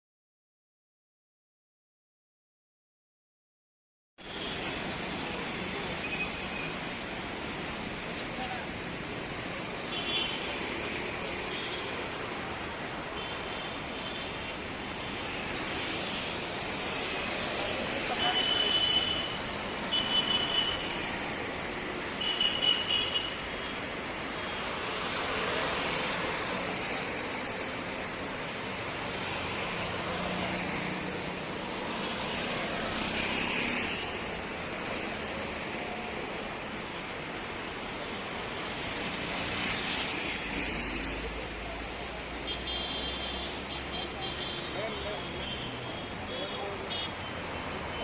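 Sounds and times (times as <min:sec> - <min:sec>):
road traffic noise: 0:04.2 - 0:48.0
vehicles running: 0:24.3 - 0:37.5.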